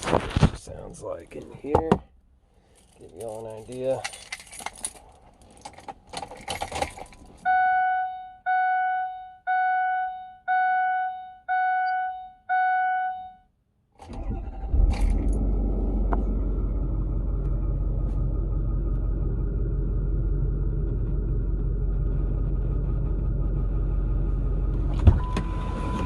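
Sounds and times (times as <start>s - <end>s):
keys jangling: 2.7s - 7.4s
dashboard warning chime: 7.4s - 13.5s, 25.2s - 26.0s
diesel engine cranking and idling: 14.0s - 26.0s.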